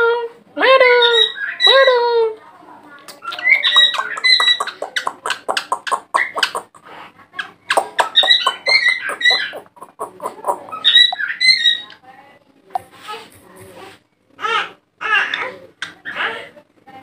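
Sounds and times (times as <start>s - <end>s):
parakeet clicky chattering: 3.1s - 11.8s
parakeet shrill chirping: 3.3s - 6.7s, 7.7s - 11.9s.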